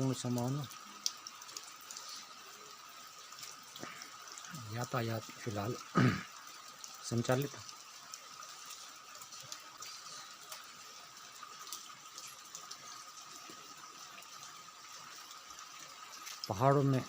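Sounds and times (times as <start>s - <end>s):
heavy rain hissing: 1.8s - 7.6s, 8.5s - 13.5s.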